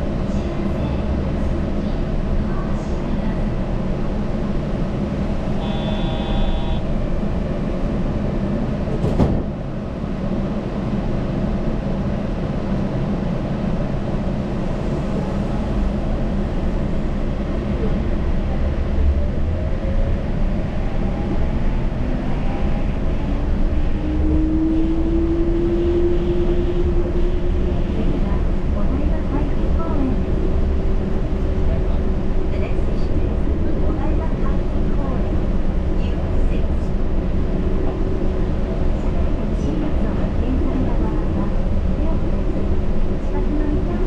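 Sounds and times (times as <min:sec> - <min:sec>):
train running low rumble: 0:00.0 - 0:44.0
electronic tone: 0:05.6 - 0:06.9.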